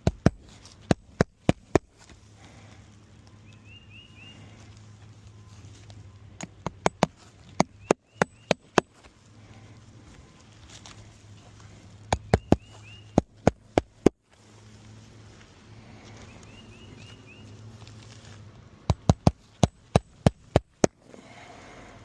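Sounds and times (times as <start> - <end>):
hammer striking shingle roof: 0.0 - 1.9, 6.6 - 8.9, 18.9 - 21.0.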